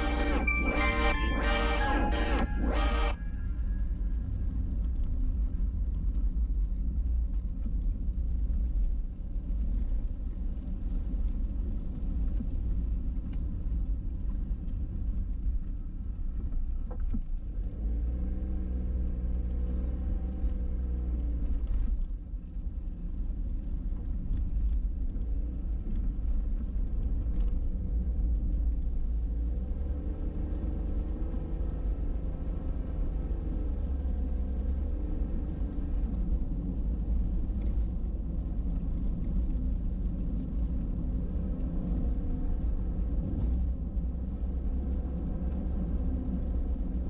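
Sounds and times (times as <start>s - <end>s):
car driving rumble: 0.0s - 3.5s, 22.8s - 47.0s.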